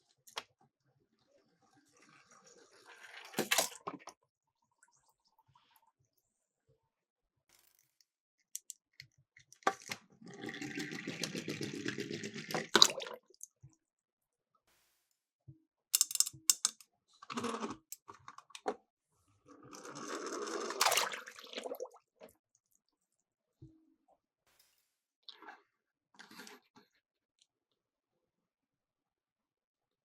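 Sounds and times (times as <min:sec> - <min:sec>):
clicks of toys being handled: 0:07.5 - 0:10.0, 0:16.0 - 0:18.8
toy cars rattling down plastic slope: 0:09.7 - 0:12.8, 0:17.3 - 0:18.3, 0:19.6 - 0:20.8.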